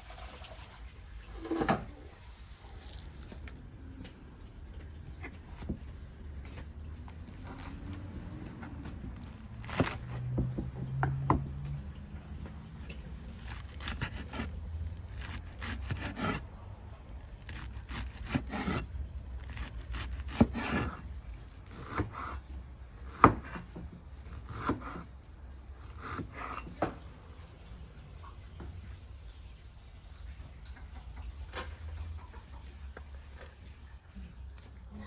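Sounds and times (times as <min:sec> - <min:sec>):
rubbing and scraping strokes: 0:09.1 - 0:10.1, 0:12.8 - 0:22.1.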